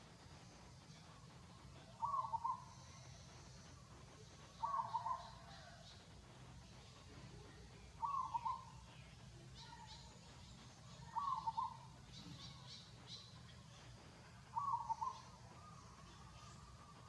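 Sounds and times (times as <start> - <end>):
faint high chirps: 0.0 - 17.0.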